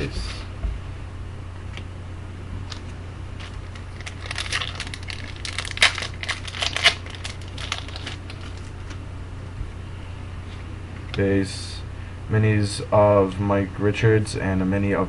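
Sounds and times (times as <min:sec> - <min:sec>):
foil wrapper tearing and crinkling: 0:03.4 - 0:09.0.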